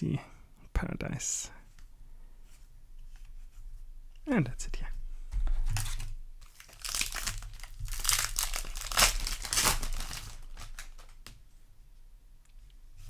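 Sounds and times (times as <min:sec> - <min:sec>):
foil wrapper crinkling: 0:05.7 - 0:11.4.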